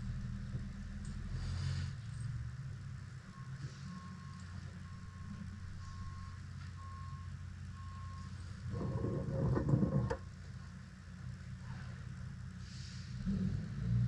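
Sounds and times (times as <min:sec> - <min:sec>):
truck engine hum: 0:00.0 - 0:14.0
reversing alarm beeping: 0:03.2 - 0:09.6
rumbling burst with a tone: 0:08.6 - 0:10.4.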